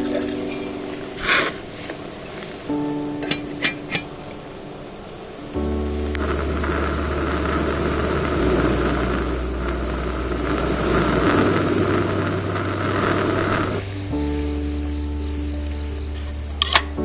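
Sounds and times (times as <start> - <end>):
music with low bass notes: 5.6 - 17.0
gas stove burner roaring: 5.8 - 17.0.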